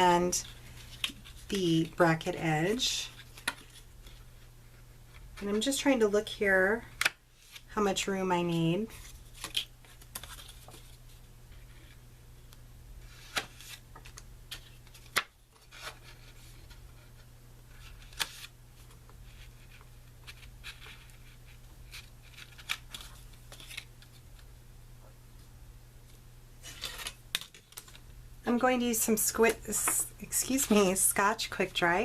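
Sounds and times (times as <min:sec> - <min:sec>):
paper rustling: 0:08.9 - 0:12.0, 0:17.7 - 0:24.2, 0:26.6 - 0:28.0.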